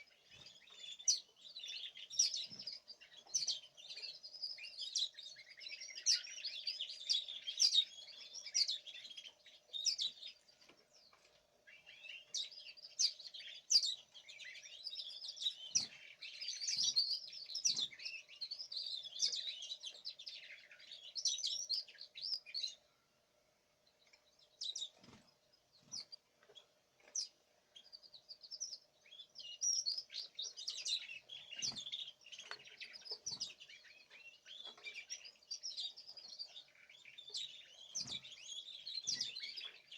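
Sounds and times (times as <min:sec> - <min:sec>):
songbirds chirping and twittering: 0:00.0 - 0:39.9
faint steady hum: 0:18.5 - 0:32.3.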